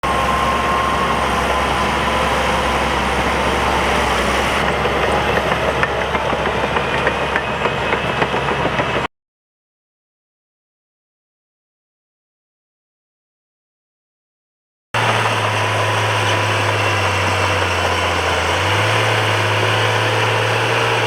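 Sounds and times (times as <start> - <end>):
bulldozer engine running: 0.0 - 9.1, 15.0 - 21.0
steady whine: 0.0 - 9.1
steel tracks clanking: 0.0 - 9.1, 15.0 - 21.0.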